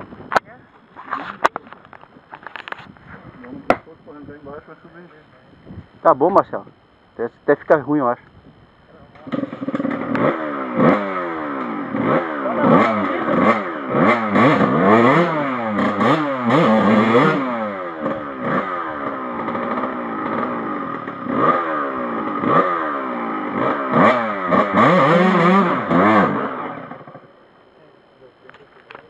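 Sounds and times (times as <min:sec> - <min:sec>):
motorcycles revving: 0:08.8 - 0:27.4.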